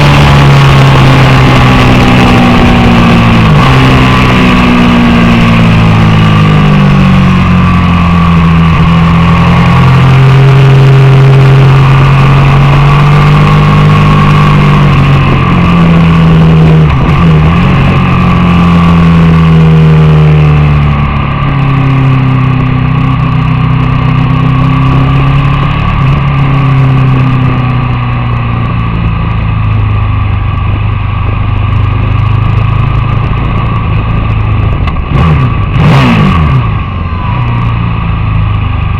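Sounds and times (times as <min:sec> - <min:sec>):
motorcycle engine revving: 0:00.0 - 0:38.9
wind and road noise: 0:00.0 - 0:38.9.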